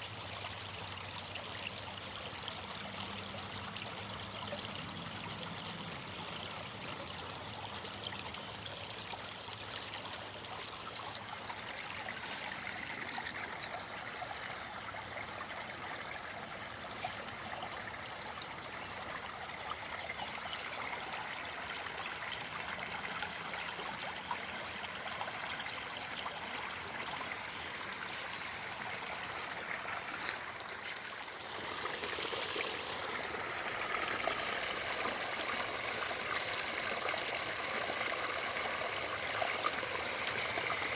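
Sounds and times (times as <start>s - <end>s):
stream water trickling: 0.0s - 40.9s.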